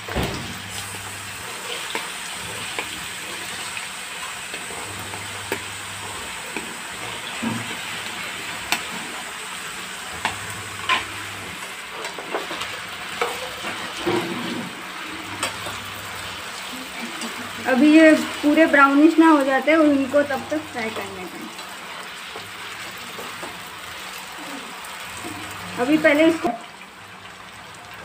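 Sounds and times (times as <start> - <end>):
potatoes sizzling in oil: 0.0 - 28.0.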